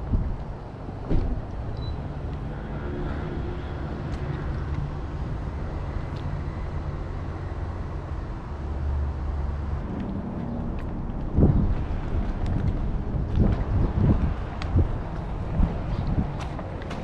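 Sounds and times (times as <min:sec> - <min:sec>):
wind buffeting microphone: 0:00.0 - 0:06.7, 0:09.8 - 0:17.0
vehicle engine rumbling: 0:00.0 - 0:17.0.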